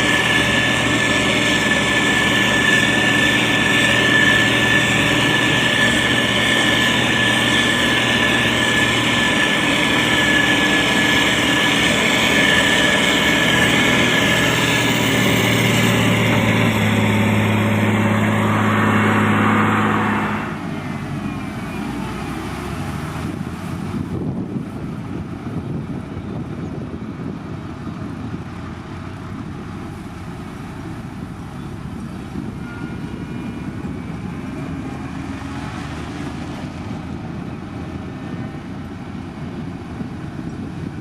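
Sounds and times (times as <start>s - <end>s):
high steady whine: 0.0s - 21.4s
diesel engine running: 0.0s - 41.0s.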